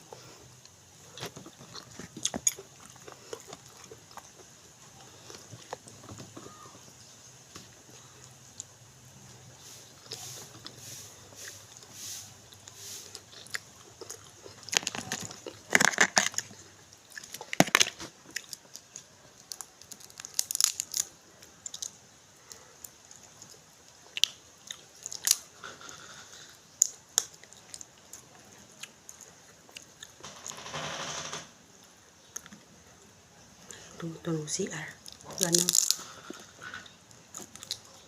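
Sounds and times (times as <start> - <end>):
rustle: 0.0 - 29.2
chewing and crunching: 0.0 - 30.2, 31.8 - 38.0.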